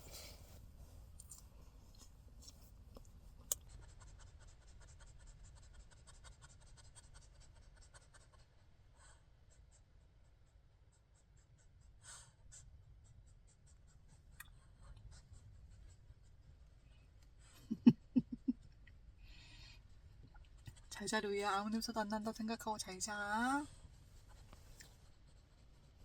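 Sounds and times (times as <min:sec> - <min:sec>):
soft rustle: 0:23.2 - 0:26.0.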